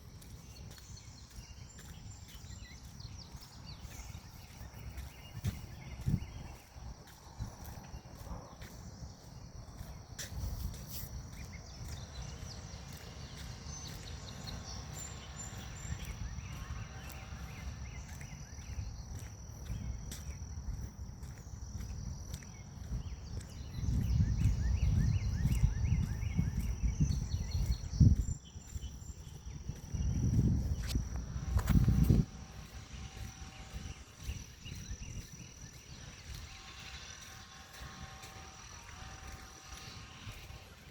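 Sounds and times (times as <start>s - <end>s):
birds chirping: 0.0s - 40.9s
insects droning: 0.0s - 40.9s
wind gusts on microphone: 1.0s - 8.2s, 18.6s - 40.9s.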